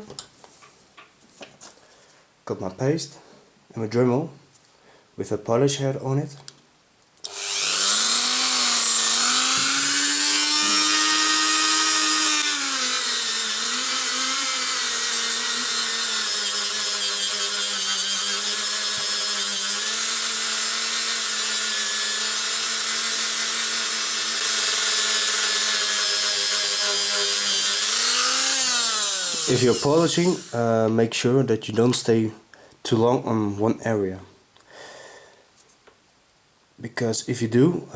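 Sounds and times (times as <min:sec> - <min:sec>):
rotary tool whining: 0:07.2 - 0:30.6.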